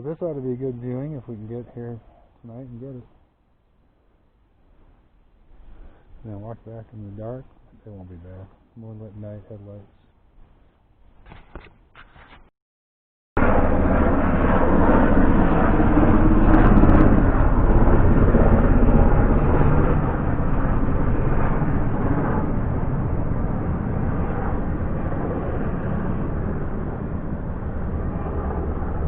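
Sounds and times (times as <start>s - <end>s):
low rumble: 13.4s - 29.0s.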